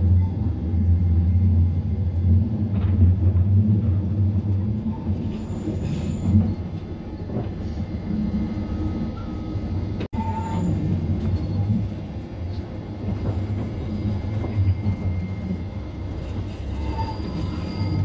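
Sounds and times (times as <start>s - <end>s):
train wheels rumbling on track: 0.0s - 18.0s
faint wheel squeals: 16.2s - 18.0s.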